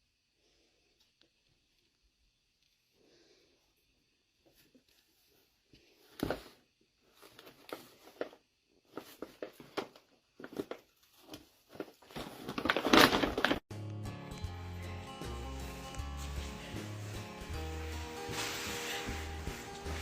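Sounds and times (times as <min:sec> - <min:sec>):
rustling: 0:04.4 - 0:13.6, 0:15.6 - 0:20.0
background music: 0:13.7 - 0:20.0.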